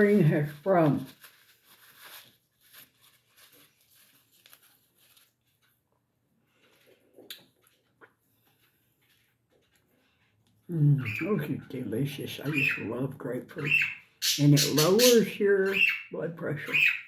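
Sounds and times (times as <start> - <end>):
faint small clicks and rustles: 0.6 - 10.7.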